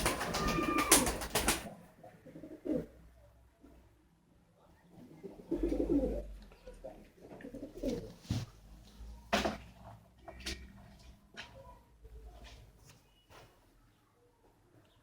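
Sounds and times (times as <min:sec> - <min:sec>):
pigeons cooing: 0:00.0 - 0:03.0, 0:05.1 - 0:08.2.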